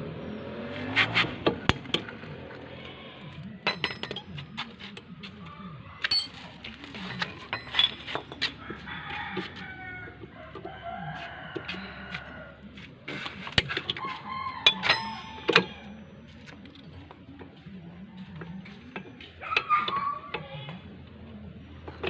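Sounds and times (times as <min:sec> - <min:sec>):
metal clinks and knocks: 0:06.1 - 0:06.4
chickens clucking: 0:17.0 - 0:22.0.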